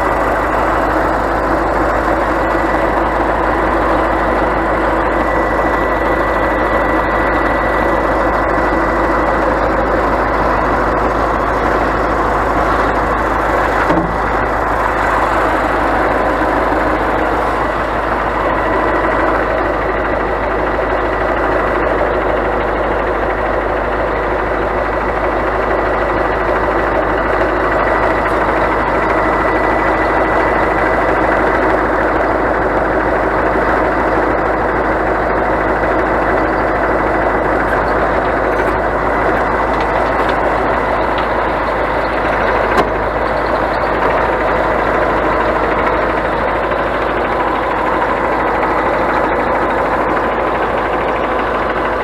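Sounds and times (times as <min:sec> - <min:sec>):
diesel truck engine running: 0:00.0 - 0:52.0.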